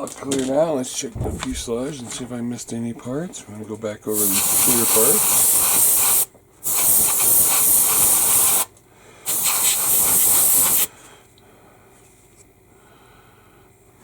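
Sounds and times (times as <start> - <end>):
airbrush spraying hiss: 4.2 - 8.6, 9.3 - 10.9.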